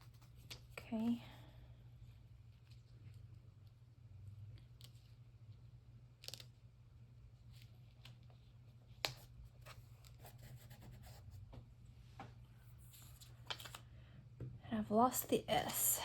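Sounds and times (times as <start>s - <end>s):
paper rustling: 12.8s - 13.8s.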